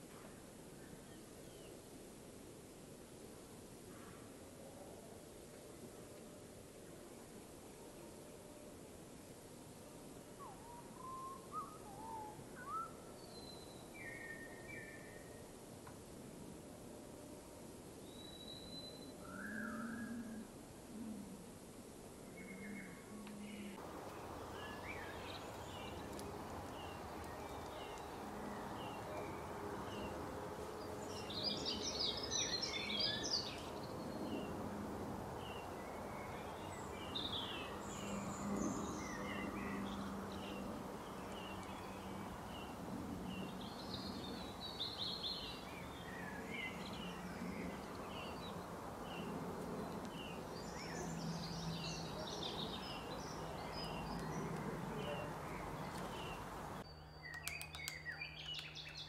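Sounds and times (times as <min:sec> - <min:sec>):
songbirds chirping: 0:00.0 - 0:02.1, 0:02.7 - 0:59.0
bird twittering song: 0:10.4 - 0:15.4, 0:18.1 - 0:20.2, 0:22.4 - 0:30.2, 0:30.8 - 0:34.5, 0:35.4 - 0:59.0.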